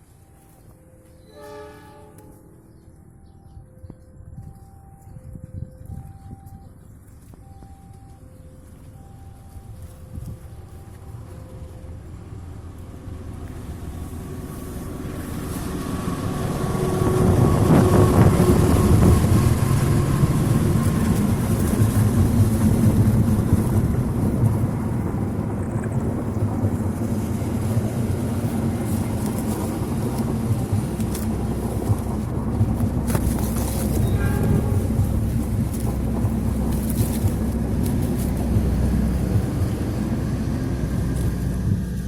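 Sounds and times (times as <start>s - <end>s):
faint whine: 0.0s - 16.6s
diesel locomotive rumbling: 0.0s - 42.0s.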